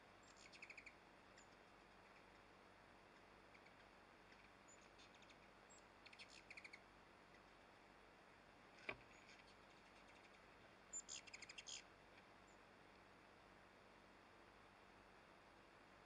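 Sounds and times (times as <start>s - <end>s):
high bird chirps: 0.2s - 1.5s, 6.0s - 6.8s, 10.9s - 11.8s.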